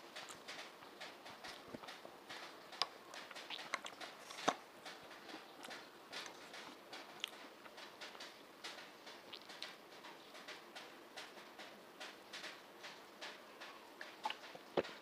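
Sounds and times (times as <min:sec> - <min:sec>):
wet chewing: 0:01.4 - 0:08.3, 0:09.1 - 0:09.8, 0:14.0 - 0:15.0.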